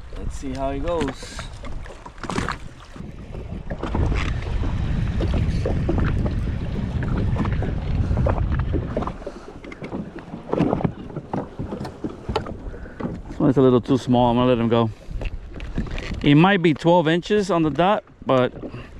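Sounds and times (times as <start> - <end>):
wind buffeting microphone: 0.0 - 16.4
water lapping against hull: 0.0 - 18.9
heavy low rumble: 3.0 - 9.6.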